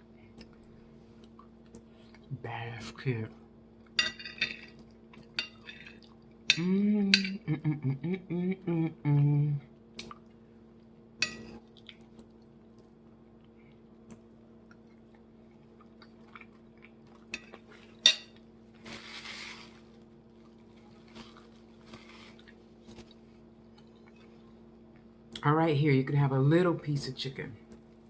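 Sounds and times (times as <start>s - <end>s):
steady electrical hum: 0.0s - 28.0s
dishes and utensils clinking: 4.0s - 4.8s.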